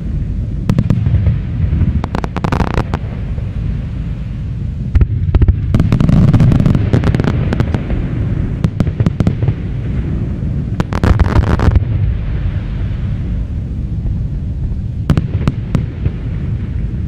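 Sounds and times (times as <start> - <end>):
low rumble of bursts: 0.0 - 17.0
fireworks crackling: 0.7 - 4.2, 4.9 - 13.4.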